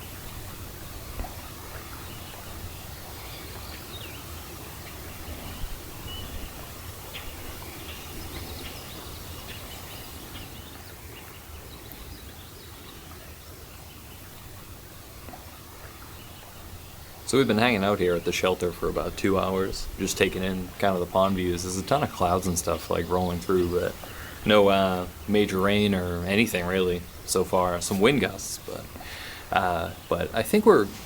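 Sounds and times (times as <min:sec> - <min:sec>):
low wind rumble: 0:00.0 - 0:31.0
bird chirps: 0:16.1 - 0:31.0.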